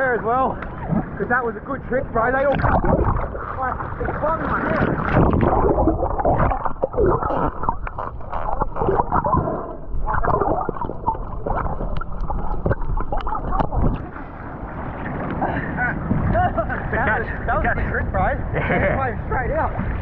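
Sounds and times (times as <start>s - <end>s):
underwater churning water: 0.0s - 18.3s, 19.3s - 20.0s
gurgling bubbles: 0.6s - 16.6s.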